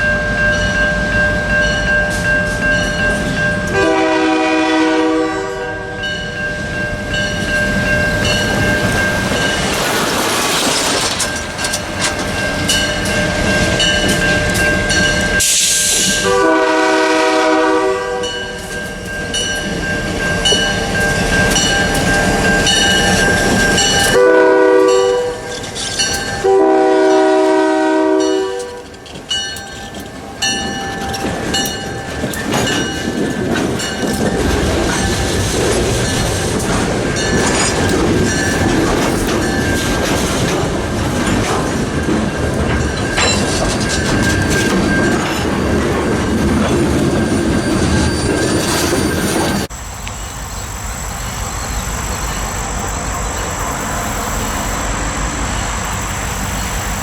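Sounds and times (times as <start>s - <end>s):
crossing bell ringing: 0.0s - 10.1s, 11.1s - 56.0s
train wheels clicking and rumbling: 0.0s - 57.0s
locomotive air horn: 3.7s - 6.1s, 15.4s - 18.4s, 23.8s - 25.6s, 26.4s - 28.9s.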